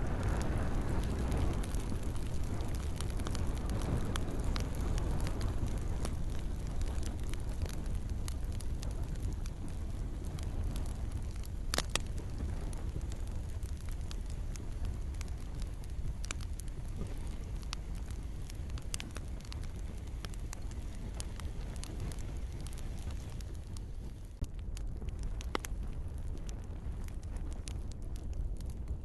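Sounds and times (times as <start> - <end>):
burning wood popping and snapping: 0.0 - 29.0
steady low rumble: 0.0 - 29.0.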